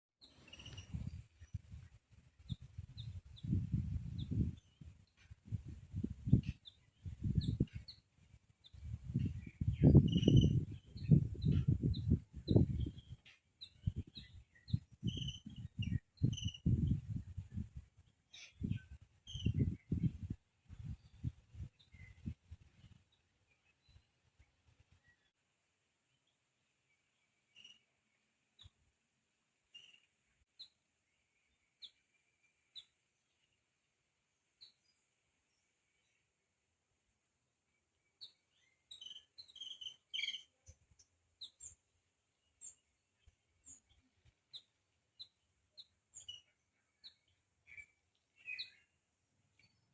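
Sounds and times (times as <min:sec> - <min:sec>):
birds chirping: 0:00.2 - 0:01.7, 0:06.3 - 0:17.7, 0:38.1 - 0:41.8, 0:42.4 - 0:49.9.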